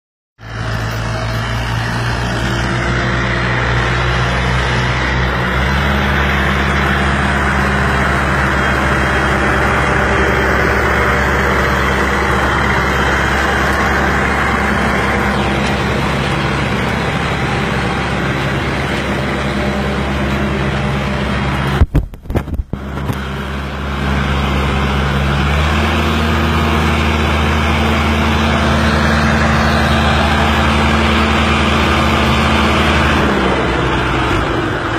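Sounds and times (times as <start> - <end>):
tractor diesel engine running: 0.4 - 34.9
engine knocks: 0.5 - 25.9.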